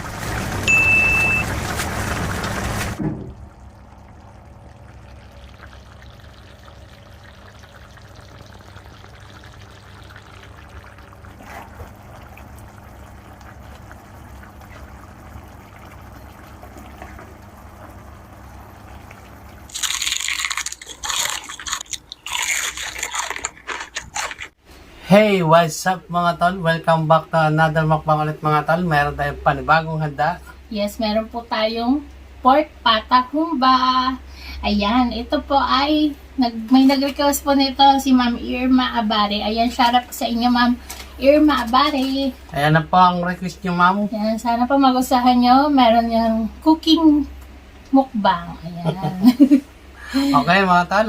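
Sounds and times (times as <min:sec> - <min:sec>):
faint steady hum: 0:00.0 - 0:51.0
thick sauce bubbling in a pan: 0:00.1 - 0:19.7
short high beep: 0:00.7 - 0:01.5.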